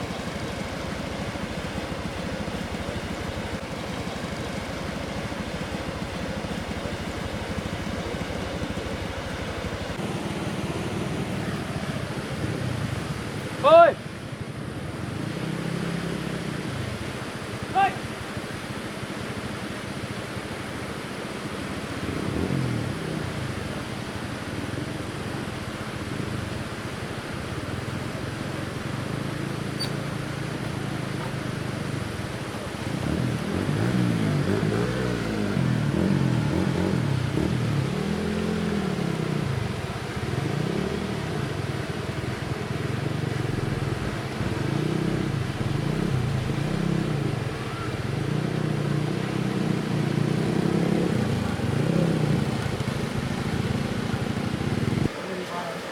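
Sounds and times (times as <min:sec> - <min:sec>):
small engine revving: 0:32.9 - 0:41.7, 0:43.0 - 0:55.1.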